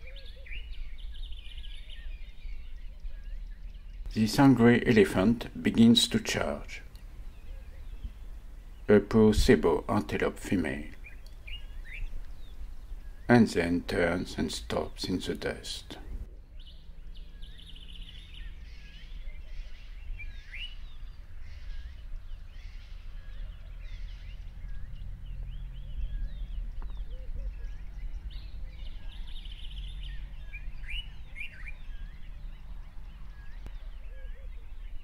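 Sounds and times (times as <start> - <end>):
birds whistling: 0.0 - 4.2, 6.3 - 8.9, 10.6 - 13.4, 16.0 - 35.0
low rumble: 22.1 - 34.0.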